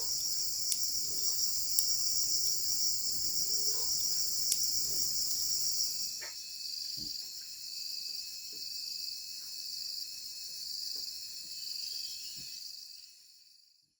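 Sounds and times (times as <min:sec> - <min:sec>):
pulsing insect call: 0:00.0 - 0:06.1
high-pitched insect chorus: 0:00.0 - 0:13.8.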